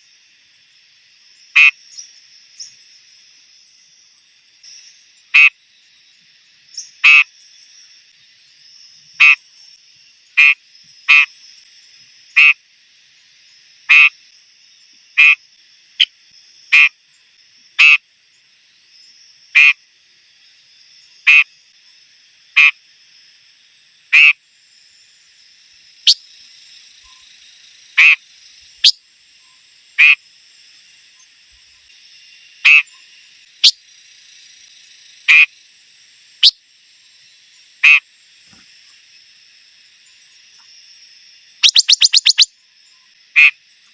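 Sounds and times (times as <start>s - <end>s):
faint steady hiss: 0.0s - 43.9s
bird harsh call: 9.2s - 9.4s, 32.6s - 32.9s, 37.8s - 38.0s, 41.6s - 42.5s, 43.4s - 43.6s.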